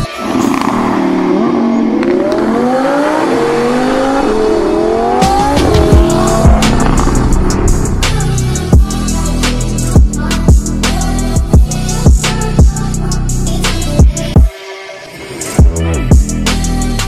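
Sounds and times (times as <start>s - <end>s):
car engine accelerating hard: 0.0s - 9.2s
background music with drums: 5.2s - 12.8s.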